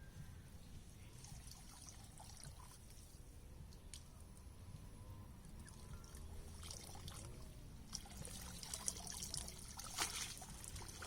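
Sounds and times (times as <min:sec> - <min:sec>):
water trickling: 0:05.5 - 0:11.0
small water splashes: 0:05.6 - 0:11.0.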